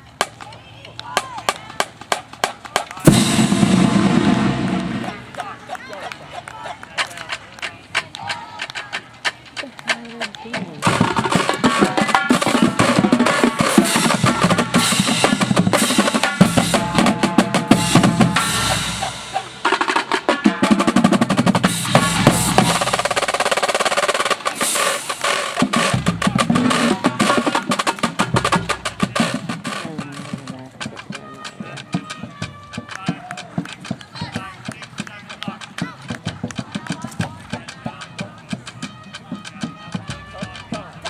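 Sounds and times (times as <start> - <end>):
marching snare drum rolls: 0.0 - 41.0
bass drums: 3.0 - 5.5, 10.5 - 23.6, 24.3 - 34.8
brass sustained chords: 3.1 - 5.4.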